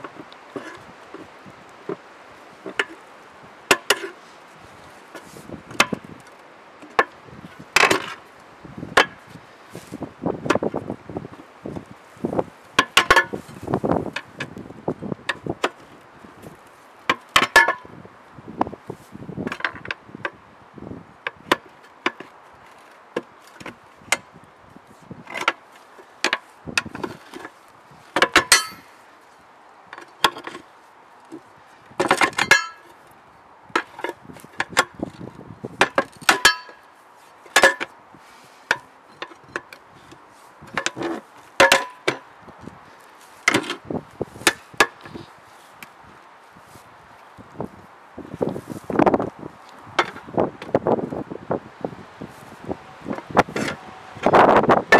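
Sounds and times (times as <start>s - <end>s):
hand tools clanking on metal rim: 28.2s - 28.9s, 32.0s - 32.9s, 35.8s - 36.8s, 40.7s - 42.2s.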